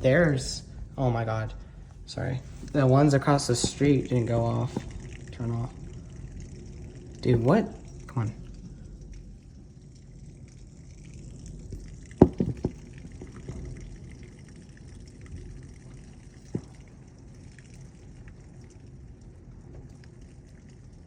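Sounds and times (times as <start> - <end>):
rain on house and window: 0.0 - 21.0
sharp knocks: 12.2 - 12.8.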